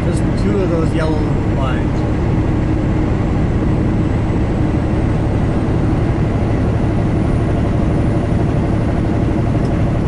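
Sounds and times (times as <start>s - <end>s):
diesel truck engine droning: 0.0s - 10.0s
road noise: 0.0s - 10.0s.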